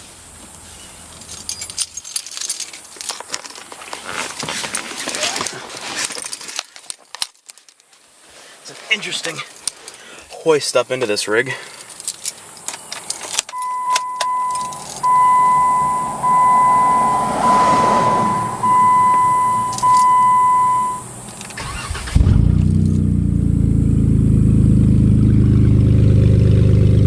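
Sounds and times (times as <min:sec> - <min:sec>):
car engine starting and idling: 0:12.5 - 0:27.0
warning chime beeps: 0:13.5 - 0:21.0.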